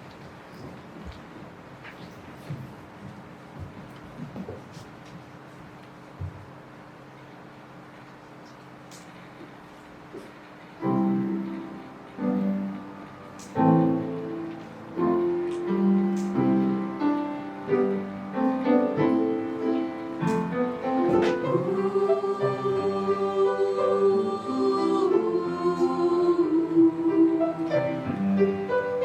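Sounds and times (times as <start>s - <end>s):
piano chords: 10.7s - 29.0s.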